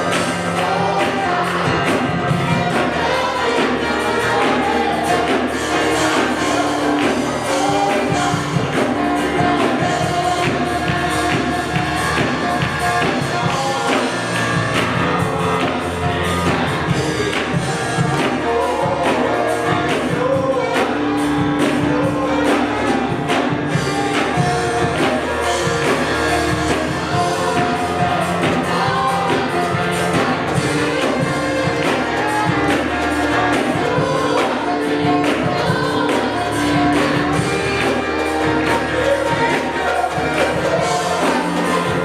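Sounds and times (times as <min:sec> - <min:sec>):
people singing: 0:00.0 - 0:42.0
steady drum beat: 0:00.0 - 0:42.0
worship band music: 0:00.0 - 0:42.0.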